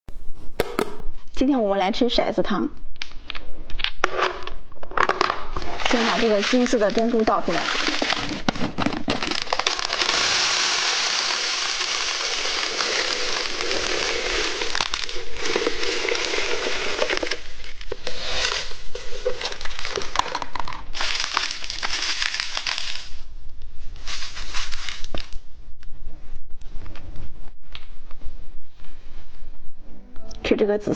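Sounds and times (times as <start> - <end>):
candy crunching: 5.0 - 23.2
candy pearls pouring rattle: 9.1 - 17.6, 18.2 - 23.2.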